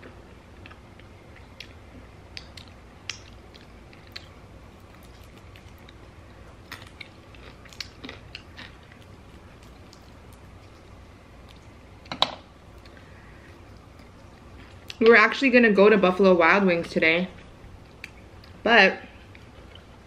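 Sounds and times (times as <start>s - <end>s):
low steady hum: 0.0s - 20.0s
chewing chicken wing: 0.1s - 11.8s
soft mouth and finger clicks: 1.5s - 4.3s.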